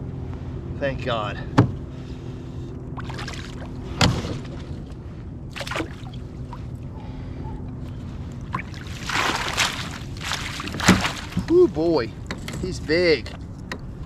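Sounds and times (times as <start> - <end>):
steady low hum: 0.0 - 14.0
water splashing at kayak: 3.0 - 4.7, 5.5 - 6.7, 8.4 - 11.7.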